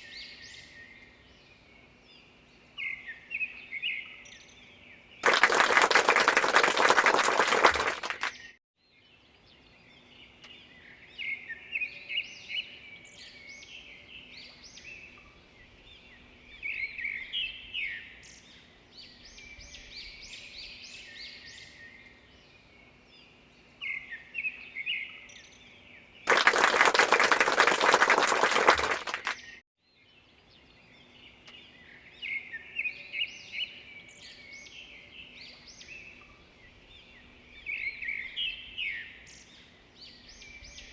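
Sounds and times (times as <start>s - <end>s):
small birds chirping: 8.3s - 40.9s.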